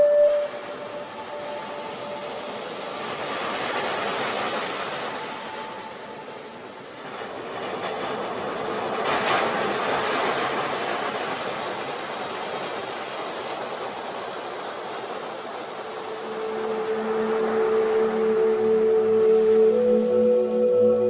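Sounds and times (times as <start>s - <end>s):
soft ambient rushing noise: 0.0s - 9.0s, 14.9s - 21.0s.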